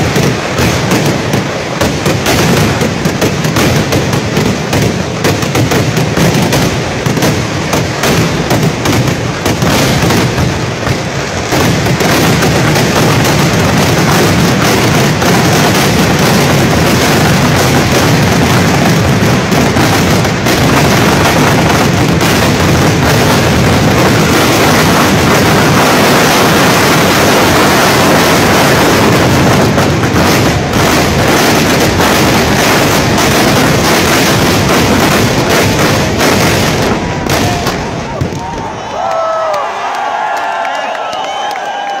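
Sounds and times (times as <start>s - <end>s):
fireworks blasts and crackling: 0.0s - 42.0s.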